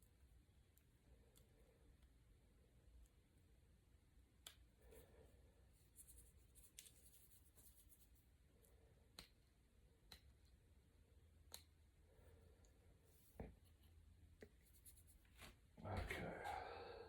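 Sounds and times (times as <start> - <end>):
faint scratching: 4.8 - 8.3, 12.2 - 16.6.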